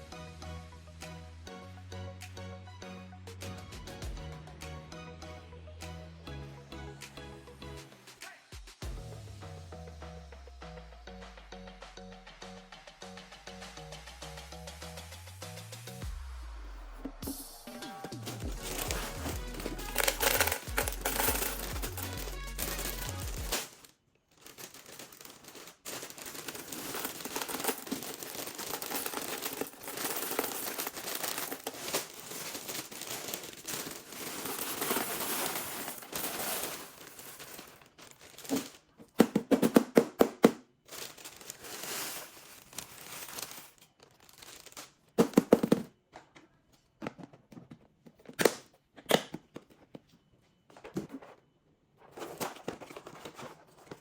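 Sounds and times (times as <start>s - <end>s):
plastic packaging crinkling: 18.0s - 39.0s, 40.8s - 45.2s.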